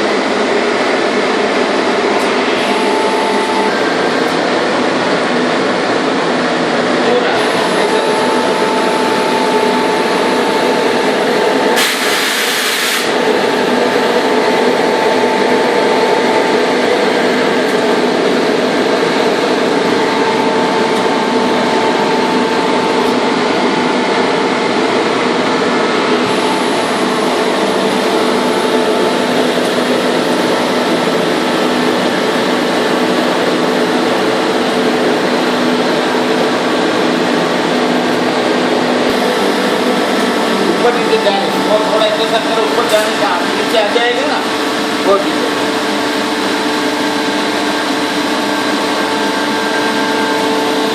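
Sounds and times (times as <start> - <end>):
air compressor humming: 0.0 - 50.9
brief air hiss: 11.8 - 13.1.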